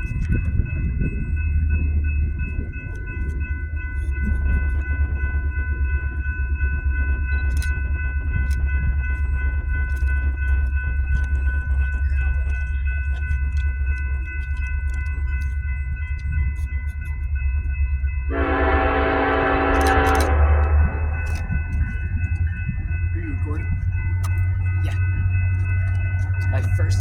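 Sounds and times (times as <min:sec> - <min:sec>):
train rumbling past: 0:00.0 - 0:27.0
scattered clicks: 0:07.3 - 0:07.8, 0:19.4 - 0:27.0
locomotive horn blast: 0:18.3 - 0:21.5.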